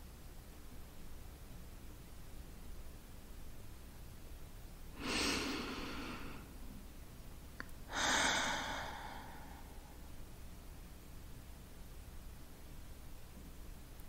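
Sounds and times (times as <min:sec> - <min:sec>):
person exhaling slowly: 0:05.0 - 0:06.5, 0:07.9 - 0:10.0.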